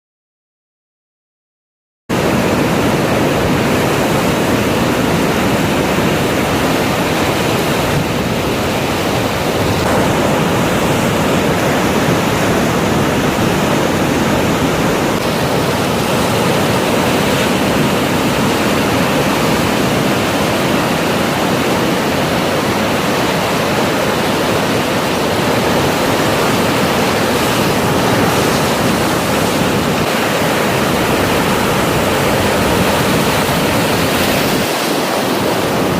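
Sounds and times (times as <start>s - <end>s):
ocean surf breaking: 2.1s - 35.9s.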